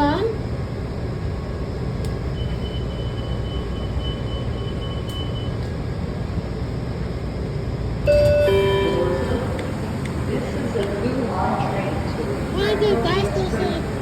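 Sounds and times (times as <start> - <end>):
train rumbling: 0.0 - 14.0
descending two-tone chime: 8.1 - 9.7
faint high whine: 8.1 - 14.0.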